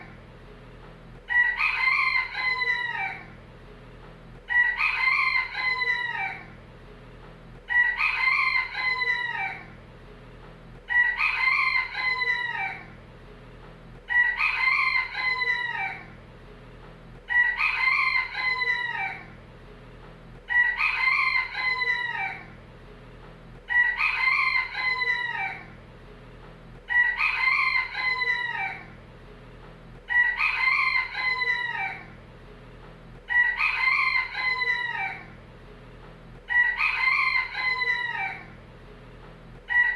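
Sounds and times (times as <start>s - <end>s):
rooster crowing: 1.3s - 3.4s, 4.5s - 6.6s, 7.7s - 9.8s, 10.9s - 13.0s, 14.1s - 16.2s, 17.3s - 19.4s, 20.5s - 22.6s, 23.7s - 25.8s, 26.9s - 29.0s, 30.1s - 32.2s, 33.3s - 35.4s, 36.5s - 38.6s, 39.7s - 39.9s.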